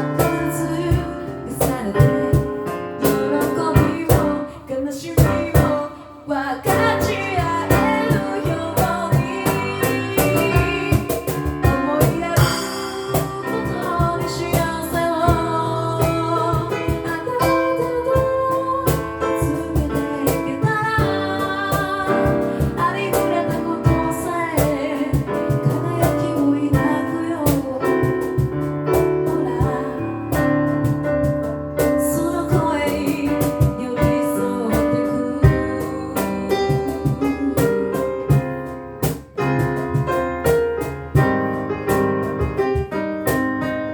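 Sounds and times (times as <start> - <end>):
vocal percussion beat: 0.0 - 4.6, 6.6 - 43.8
backing vocal harmonies: 0.0 - 28.0.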